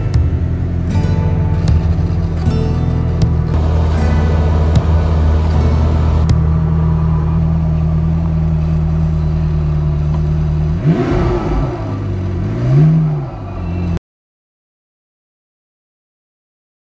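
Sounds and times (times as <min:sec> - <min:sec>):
car engine idling: 0:00.0 - 0:14.0
car engine revving: 0:00.0 - 0:14.0.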